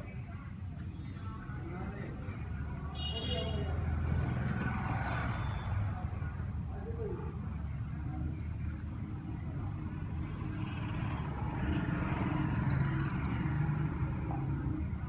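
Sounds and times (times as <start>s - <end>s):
road traffic rumble: 0.0s - 15.0s
vehicle passing: 3.7s - 6.0s, 9.7s - 15.0s.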